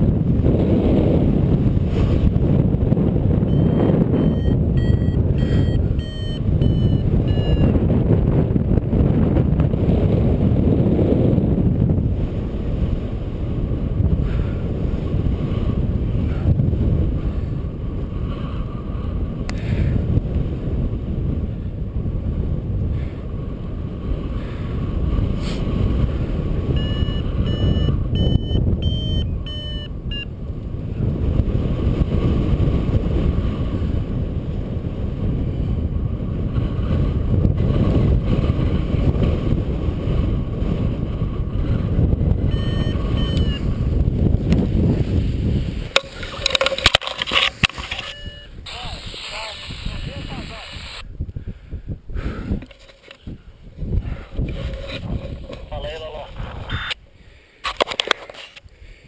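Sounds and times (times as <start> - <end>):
wind buffeting microphone: 0.0 - 59.0
variometer beeping: 3.4 - 7.9, 26.7 - 30.3, 42.4 - 43.8, 47.7 - 48.6, 56.7 - 57.0.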